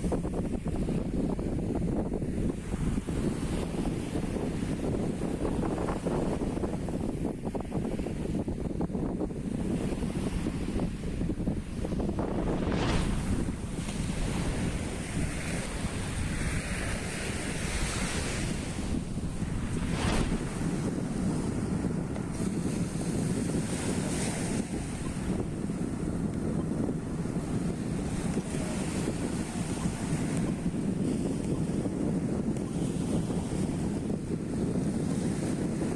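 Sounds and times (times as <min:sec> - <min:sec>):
wind buffeting microphone: 0:00.0 - 0:35.9
surf breaking: 0:10.7 - 0:31.2.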